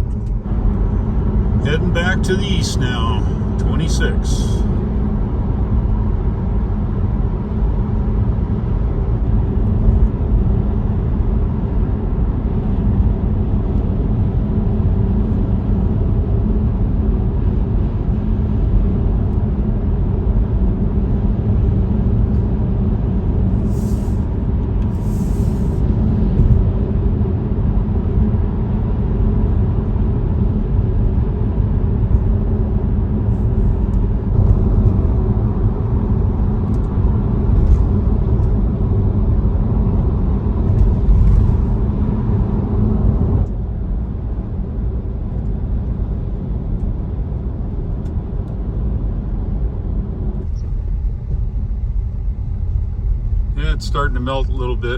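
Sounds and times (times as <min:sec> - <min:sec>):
road and tyre rumble in car: 0:00.0 - 0:54.9
short hisses: 0:23.7 - 0:24.2, 0:25.0 - 0:25.8.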